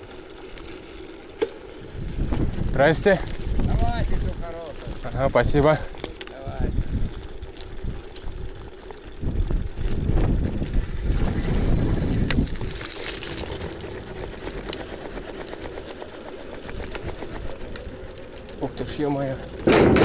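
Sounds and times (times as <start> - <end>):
bike tyres crunching over gravel: 0.0 - 20.0
wind rumbling on microphone: 1.8 - 5.7, 6.4 - 16.0.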